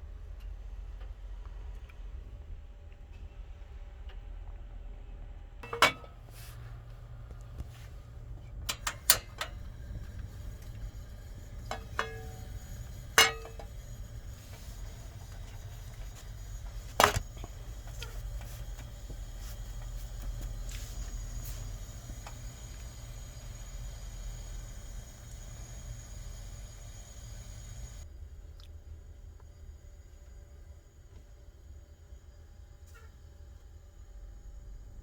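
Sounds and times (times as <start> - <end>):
steady low hum: 5.0 - 32.8
metal utensil clanking against pan: 5.6 - 6.2, 11.7 - 13.8.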